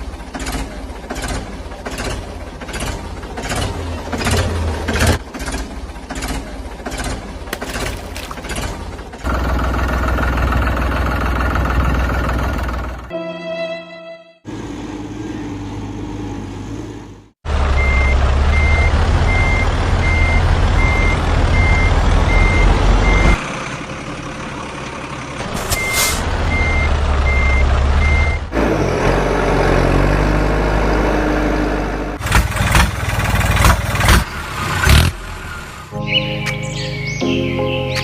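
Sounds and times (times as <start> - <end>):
heavy engine rumble: 0.0 - 13.1, 14.5 - 38.0
vehicle reversing alarm beeping: 17.7 - 23.4, 25.6 - 28.5.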